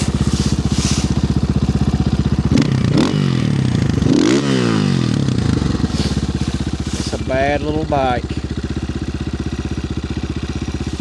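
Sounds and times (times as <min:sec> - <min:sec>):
dirt bike engine idling and revving: 0:00.0 - 0:11.0.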